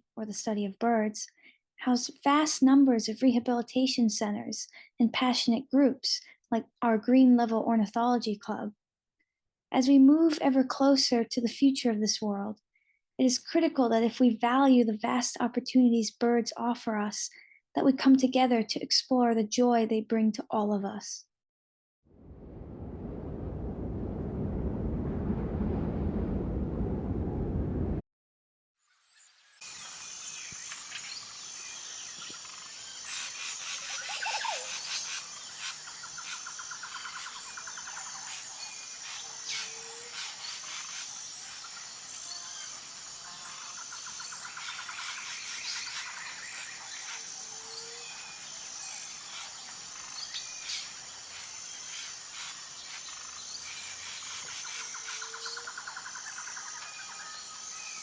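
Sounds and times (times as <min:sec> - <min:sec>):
low rising frog call: 0:22.2 - 0:28.0
high-pitched insect drone: 0:29.6 - 0:58.0.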